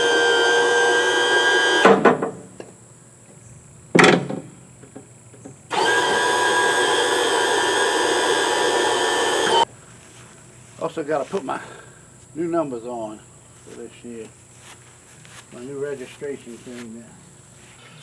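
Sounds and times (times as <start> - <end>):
power tool motor whining: 0.0 - 2.0, 5.7 - 9.7.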